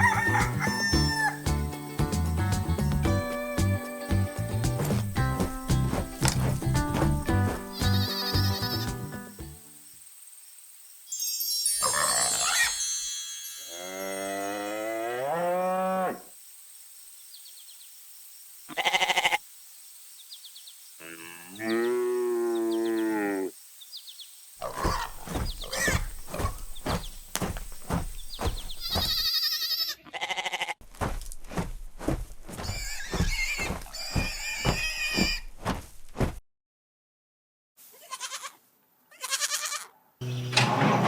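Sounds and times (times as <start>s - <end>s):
farm animal calls: 0.0s - 1.5s, 4.8s - 9.0s, 18.7s - 19.4s, 24.6s - 27.2s, 27.8s - 30.8s, 38.0s - 41.0s.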